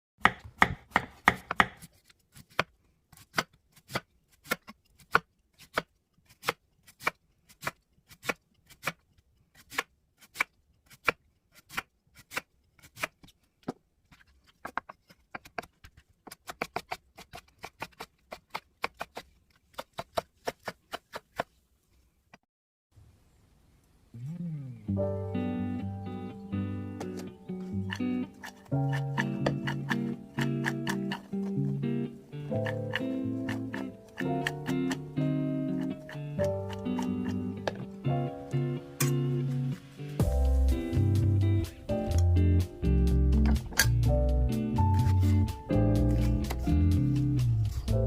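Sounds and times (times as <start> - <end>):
knife chopping on cutting board: 0.2 - 8.9, 27.9 - 31.3, 35.7 - 37.8.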